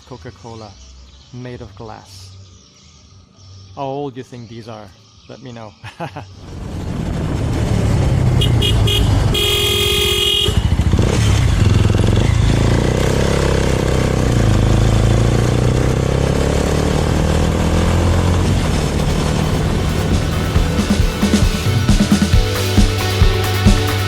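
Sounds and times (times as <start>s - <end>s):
motorcycle engine running: 6.4s - 24.0s
vehicle horn tooting: 8.4s - 10.8s.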